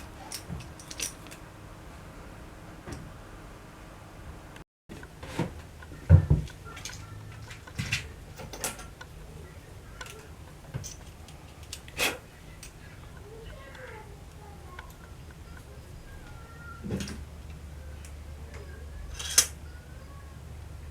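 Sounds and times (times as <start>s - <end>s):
metal tools clinking and knocking: 0.3s - 1.4s, 10.0s - 11.2s, 19.1s - 19.6s.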